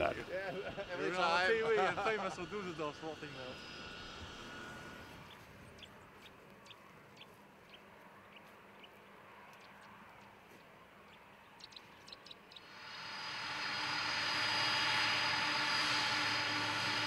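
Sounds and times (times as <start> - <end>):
small bird chirping: 5.2 - 10.0, 10.6 - 12.8.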